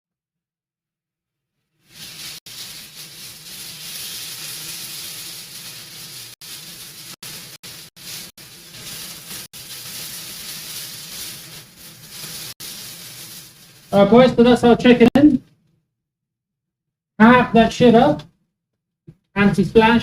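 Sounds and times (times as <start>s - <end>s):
chicken frying in a hot pan: 1.8s - 14.4s.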